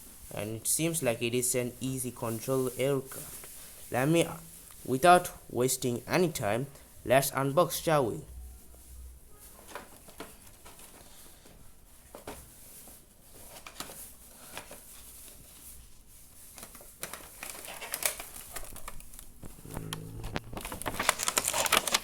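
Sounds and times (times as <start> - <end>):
cardboard box being opened: 19.5 - 22.0.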